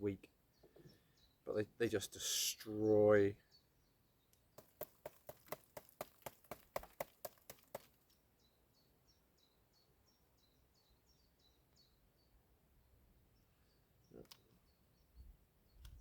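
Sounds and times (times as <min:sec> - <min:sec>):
faint bird chirps: 0:00.0 - 0:04.7, 0:08.1 - 0:12.6, 0:13.2 - 0:16.0.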